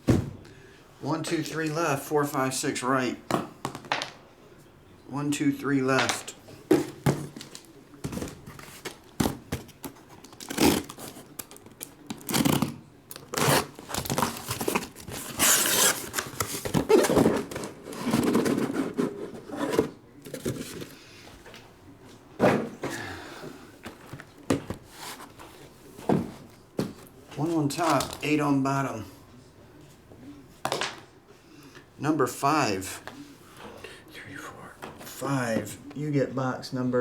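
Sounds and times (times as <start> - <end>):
card boxes shuffled on table: 6.0 - 21.6, 23.8 - 28.4
wrapping tearing and crinkling: 10.2 - 17.2.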